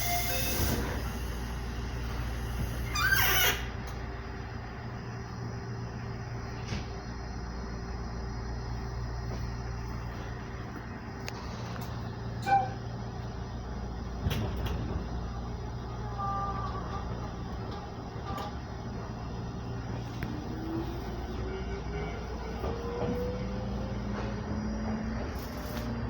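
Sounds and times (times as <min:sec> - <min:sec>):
train motor whine rising: 0:00.0 - 0:04.0, 0:18.9 - 0:26.0
electric train hum: 0:00.0 - 0:26.0.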